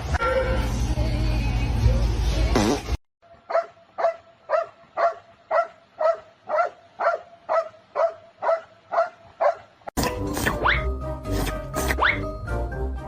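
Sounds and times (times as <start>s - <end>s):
dog barking: 3.4s - 9.7s, 11.8s - 12.2s.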